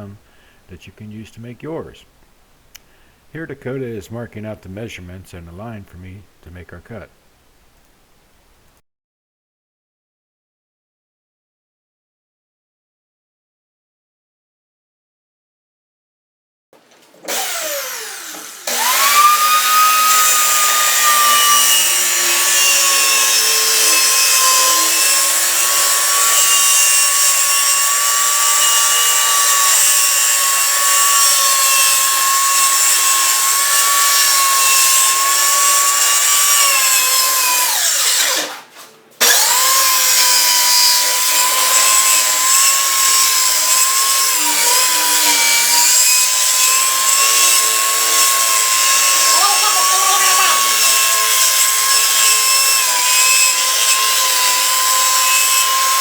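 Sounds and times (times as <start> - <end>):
power saw cutting plywood: 16.9 - 56.0.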